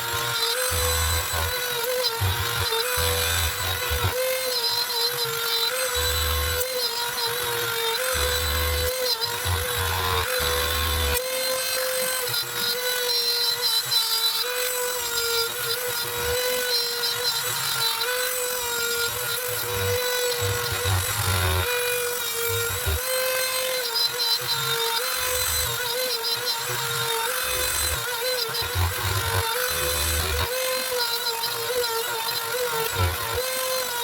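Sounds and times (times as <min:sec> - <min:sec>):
router spindle high whine: 0:00.0 - 0:34.0.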